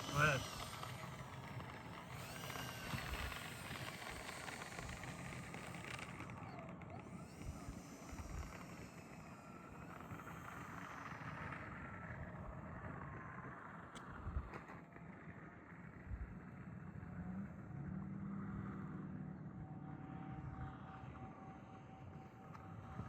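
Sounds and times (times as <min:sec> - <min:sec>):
model plane motors whining: 0:00.0 - 0:15.5.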